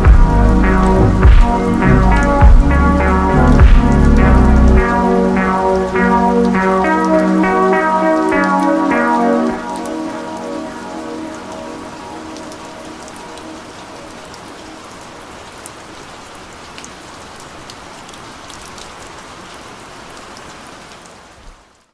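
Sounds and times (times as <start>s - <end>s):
slowed reverb-heavy music: 0.0s - 15.0s
rain falling on a surface: 0.0s - 21.9s.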